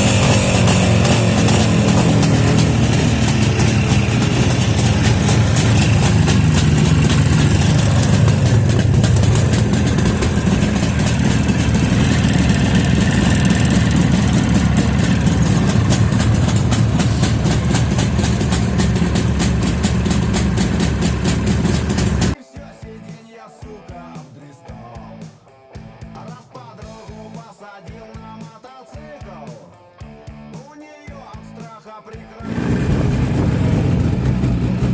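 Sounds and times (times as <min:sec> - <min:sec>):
two-stroke motorcycle engine idling: 0:00.0 - 0:22.4, 0:32.4 - 0:34.9.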